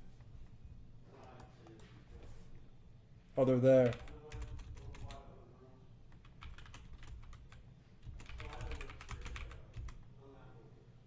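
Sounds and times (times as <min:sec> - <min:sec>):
typing on computer keyboard: 0:03.8 - 0:05.3, 0:06.1 - 0:10.0.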